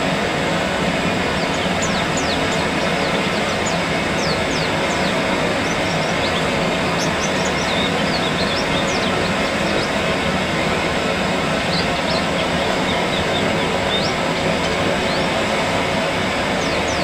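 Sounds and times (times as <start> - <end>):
steady rushing noise: 0.0 - 17.0
high bird chirps: 1.4 - 10.0.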